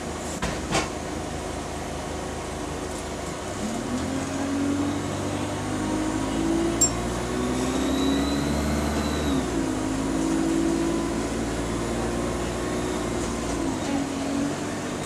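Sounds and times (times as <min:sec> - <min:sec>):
bus engine running: 0:00.0 - 0:15.0
faint high whistle: 0:07.9 - 0:09.4.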